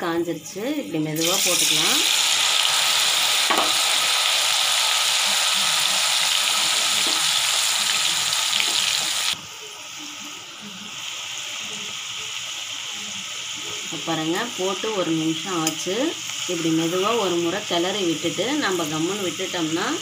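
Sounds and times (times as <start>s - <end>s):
lentils sizzling in hot oil: 0.1s - 20.0s.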